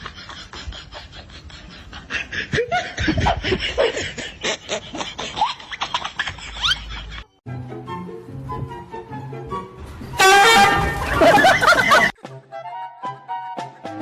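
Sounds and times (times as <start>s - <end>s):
people laughing: 0.0s - 7.4s, 10.8s - 12.2s.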